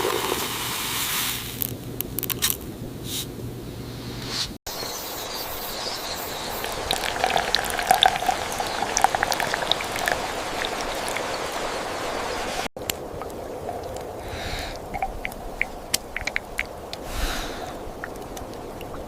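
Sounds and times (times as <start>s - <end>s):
water bubbling at a boil: 6.2s - 19.0s.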